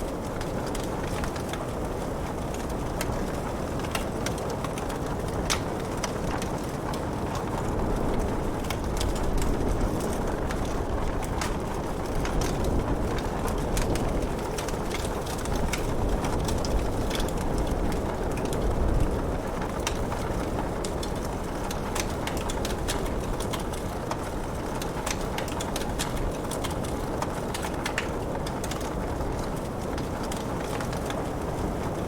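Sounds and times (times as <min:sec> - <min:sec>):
rushing rain: 0:00.0 - 0:32.0
wood fire crackling and popping: 0:00.0 - 0:32.0.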